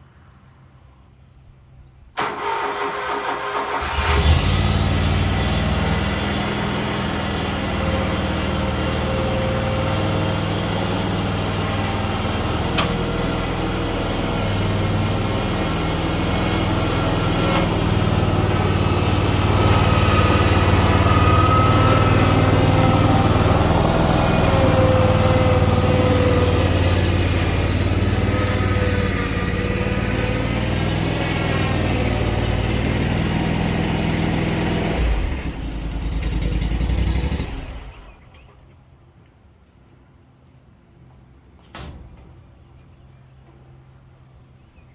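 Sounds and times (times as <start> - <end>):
mower engine running: 2.2 - 38.1.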